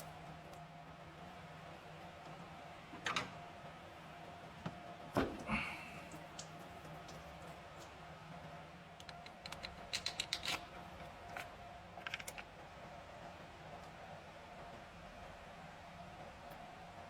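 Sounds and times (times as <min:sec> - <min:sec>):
faint steady hum: 0:02.3 - 0:10.2.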